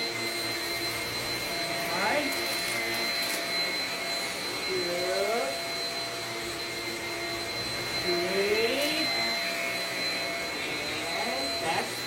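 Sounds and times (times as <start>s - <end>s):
stick vacuum running on carpet: 0.0s - 12.0s.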